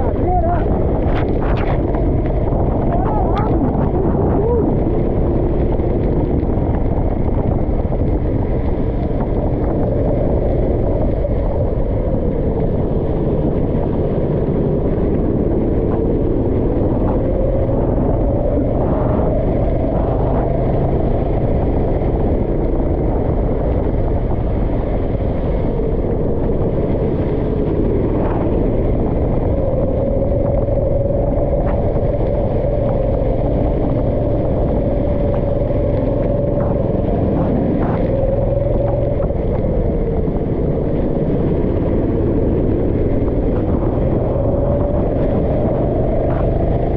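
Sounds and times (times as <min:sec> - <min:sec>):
go-kart engine revving: 0:12.9 - 0:46.9.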